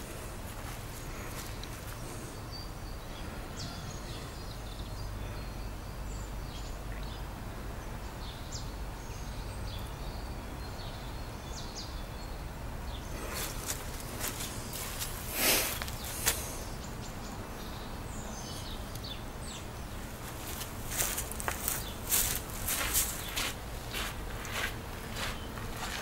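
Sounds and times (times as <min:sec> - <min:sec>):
low outdoor background noise: 0:00.0 - 0:26.0.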